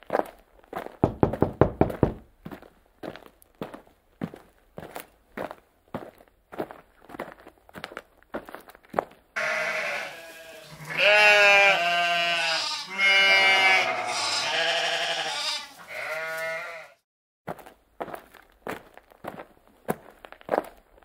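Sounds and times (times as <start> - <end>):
sheep bleating: 9.4 - 17.0.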